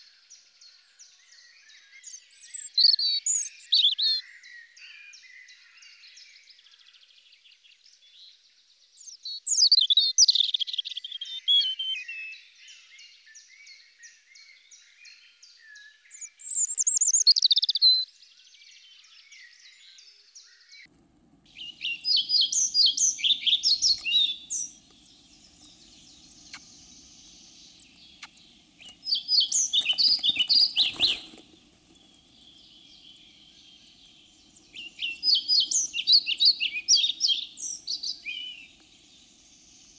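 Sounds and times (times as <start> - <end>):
robin singing: 1.8 - 4.3, 16.1 - 18.0, 20.4 - 39.9
flycatcher singing: 20.9 - 39.9
low steady hum: 20.9 - 39.9.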